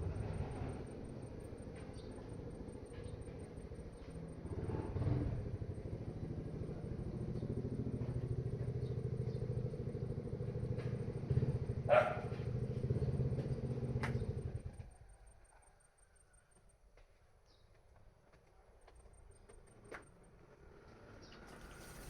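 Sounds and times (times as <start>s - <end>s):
engine running: 0.0s - 14.9s.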